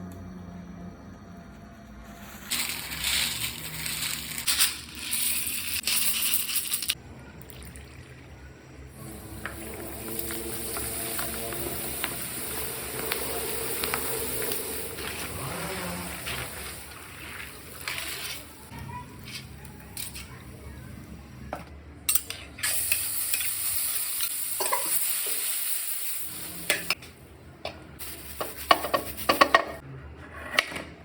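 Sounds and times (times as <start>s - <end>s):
loud hissing and clattering: 9.4s - 18.7s.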